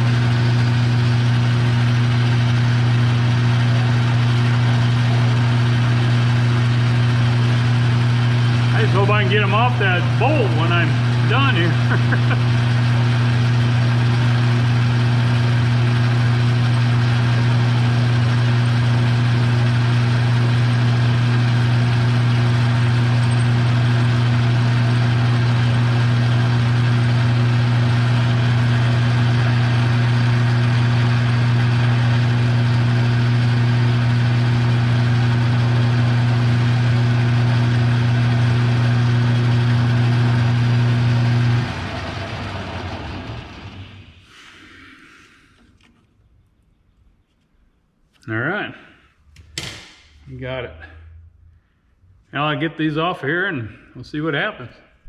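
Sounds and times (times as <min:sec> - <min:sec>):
electric motor humming: 0:00.0 - 0:43.8.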